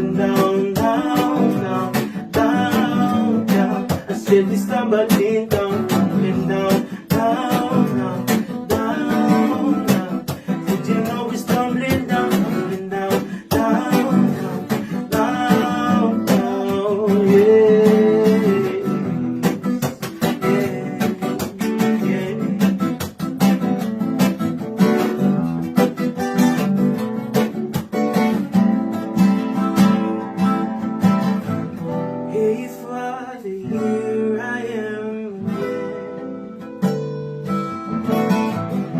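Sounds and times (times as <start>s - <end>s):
steady beat: 0.0s - 28.7s
strummed acoustic guitar: 0.0s - 38.9s.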